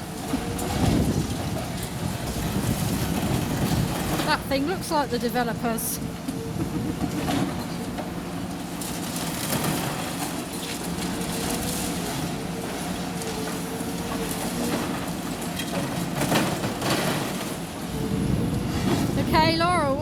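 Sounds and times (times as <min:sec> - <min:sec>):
excavator diesel engine running: 0:00.0 - 0:20.0
rubble and timber crunching: 0:06.6 - 0:20.0.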